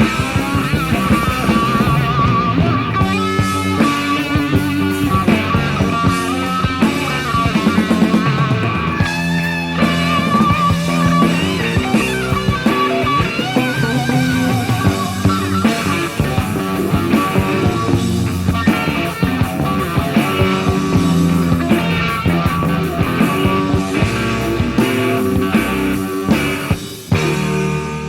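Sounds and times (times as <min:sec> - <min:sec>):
electric guitar lead: 0:00.0 - 0:28.0
hard rock band instrumental: 0:00.0 - 0:28.0.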